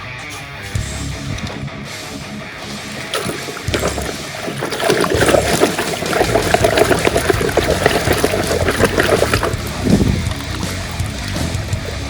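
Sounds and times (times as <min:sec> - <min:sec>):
water splashing and trickling: 0:00.6 - 0:12.0.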